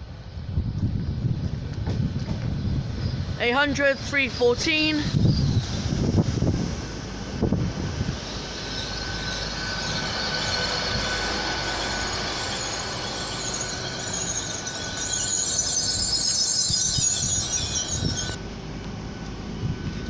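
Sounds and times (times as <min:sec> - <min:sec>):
train rolling slowly past: 0:00.0 - 0:20.0
wheel and brake squeal: 0:08.0 - 0:18.4.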